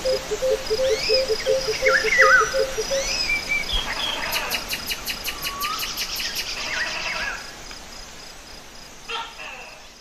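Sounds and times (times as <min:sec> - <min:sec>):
bird trilling: 0:00.0 - 0:03.3
insect pulsing chirp: 0:00.0 - 0:05.9.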